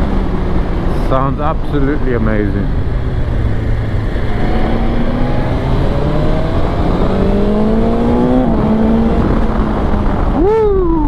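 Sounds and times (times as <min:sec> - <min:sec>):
motorcycle engine accelerating: 0:00.0 - 0:10.6
wind rush: 0:00.0 - 0:11.0.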